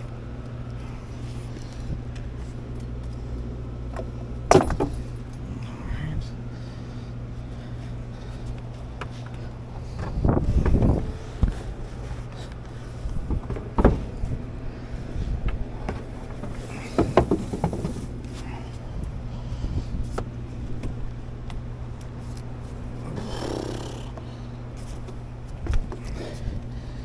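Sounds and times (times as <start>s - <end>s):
air conditioning hum: 0.0s - 27.0s
equipment knocks and clatter: 3.9s - 5.3s, 13.1s - 14.5s, 15.3s - 18.4s.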